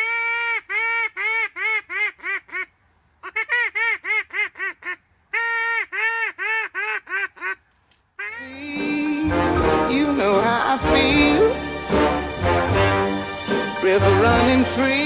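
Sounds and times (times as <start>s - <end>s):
duck quacking: 0.0s - 7.6s, 8.2s - 8.6s.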